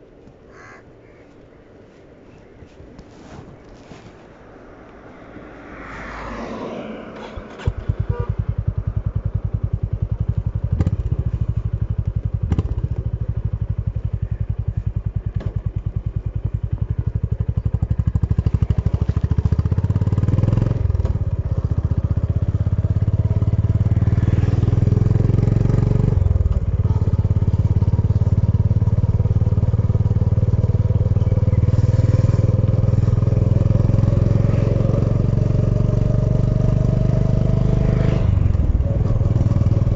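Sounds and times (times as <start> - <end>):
motorcycle riding off: 5.2 - 39.9
motorcycle engine idling: 7.6 - 36.7, 38.3 - 39.9.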